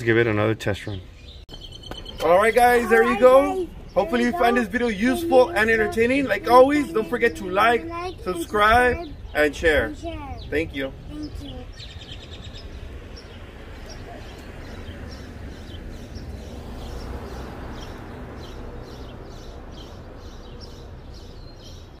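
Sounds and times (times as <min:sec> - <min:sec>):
small birds chirping: 0:00.7 - 0:22.0
low outdoor rumble: 0:01.8 - 0:17.2.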